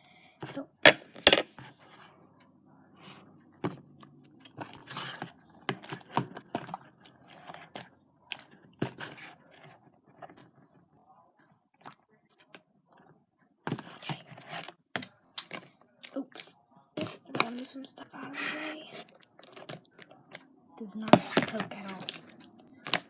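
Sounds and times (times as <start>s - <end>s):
slime squelching by hand: 17.0s - 23.0s.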